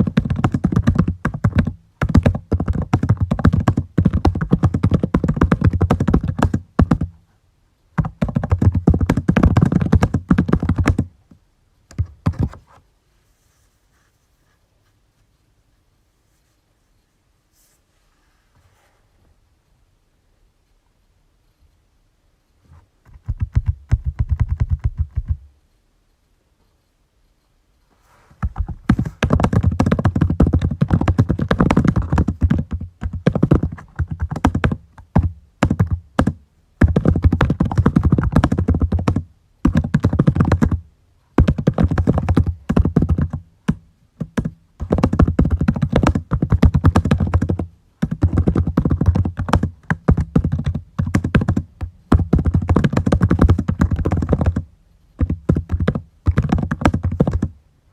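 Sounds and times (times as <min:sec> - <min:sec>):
typing on computer keyboard: 0:00.0 - 0:07.1, 0:08.0 - 0:11.1, 0:23.1 - 0:25.5, 0:28.5 - 0:40.8, 0:41.4 - 0:54.6, 0:55.2 - 0:57.5.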